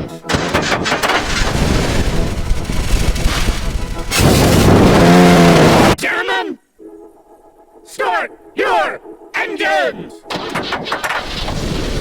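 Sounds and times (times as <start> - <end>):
race car engines running: 1.0 - 6.0.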